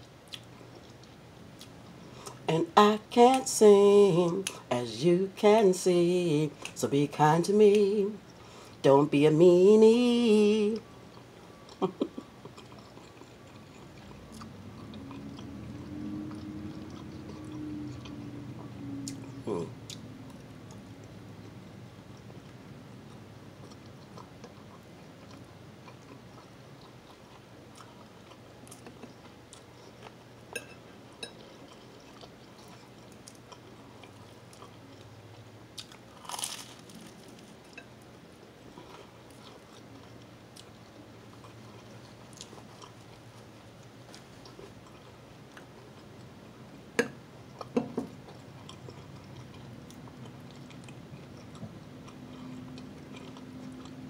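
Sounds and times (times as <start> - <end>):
person chewing food: 0.0 - 2.5, 10.6 - 46.8, 47.4 - 54.0
crisp bite: 35.8 - 37.6.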